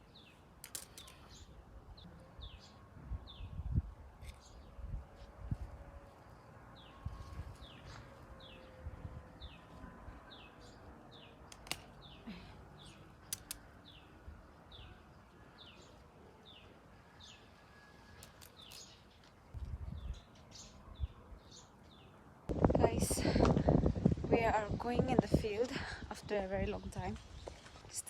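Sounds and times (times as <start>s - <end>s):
sharp clicks: 13.2s - 13.7s
low rumble: 22.5s - 26.1s.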